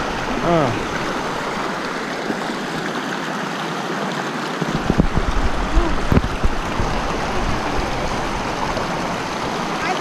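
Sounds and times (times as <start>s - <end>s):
creek water rushing: 0.0s - 10.0s
low bumps and rumbles: 4.8s - 9.0s.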